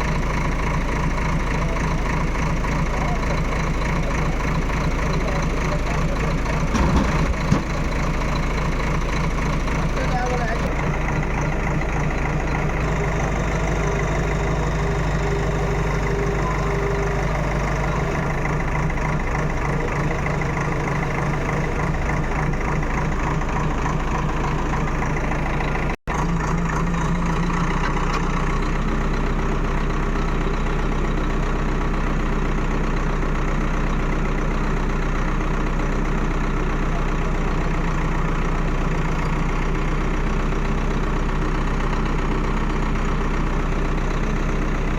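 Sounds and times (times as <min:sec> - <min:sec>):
heavy engine running: 0:00.0 - 0:44.9.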